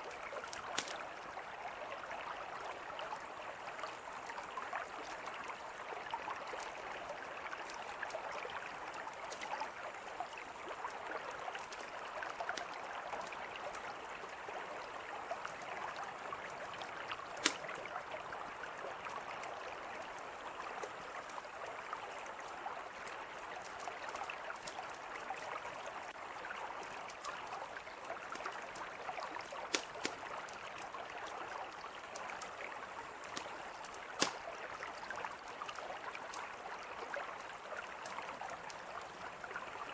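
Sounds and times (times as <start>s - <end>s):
small ticks: 0.0s - 1.1s, 3.8s - 14.2s, 15.3s - 17.9s, 22.1s - 25.5s, 26.8s - 36.6s, 37.7s - 38.8s
river flowing: 0.0s - 39.9s
campfire crackling: 0.2s - 1.0s, 16.9s - 17.9s, 28.3s - 31.3s, 32.1s - 35.2s
sharp pops: 34.2s - 34.4s.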